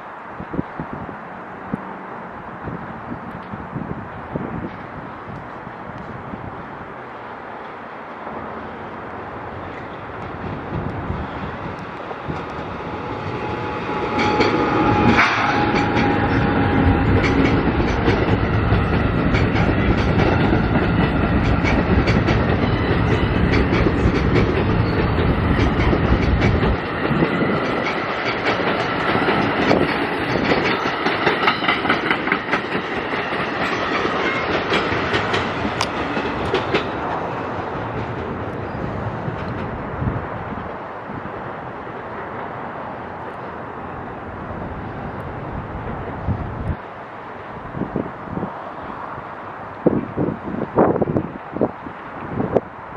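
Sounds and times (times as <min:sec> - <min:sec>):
deep train rumble: 0:08.2 - 0:52.9
train wheels clicking over rail joints: 0:09.8 - 0:39.8.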